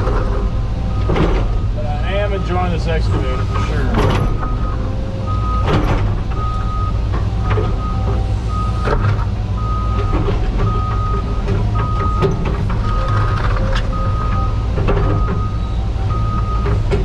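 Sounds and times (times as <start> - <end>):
excavator diesel engine droning: 0.0 - 17.0
backup alarm beeping: 4.3 - 5.8, 15.2 - 16.7.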